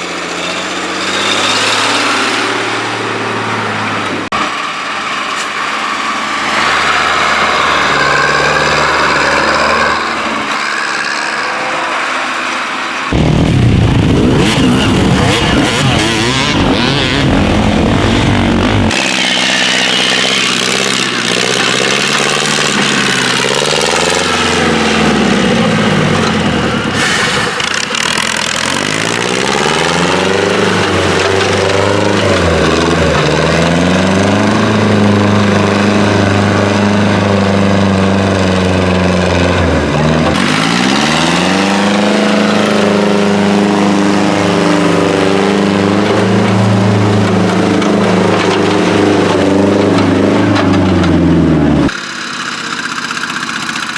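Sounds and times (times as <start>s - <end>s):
tractor engine revving: 0.0s - 53.9s
dense rush of noise: 6.5s - 19.2s.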